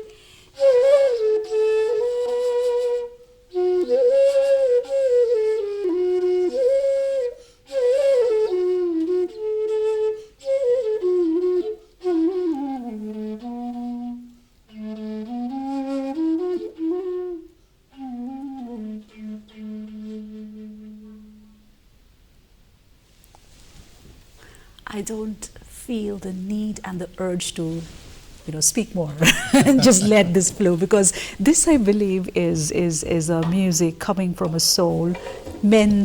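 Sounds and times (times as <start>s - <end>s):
bamboo flute melody: 0.0s - 21.8s.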